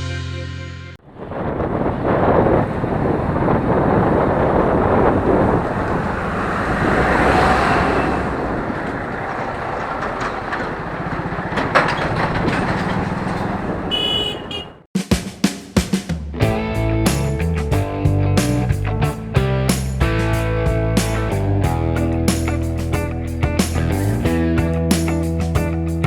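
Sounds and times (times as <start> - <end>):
music: 0.0 - 1.0, 15.0 - 26.0
road and traffic noise: 1.0 - 14.9
motorbike engine pulse: 1.5 - 14.8.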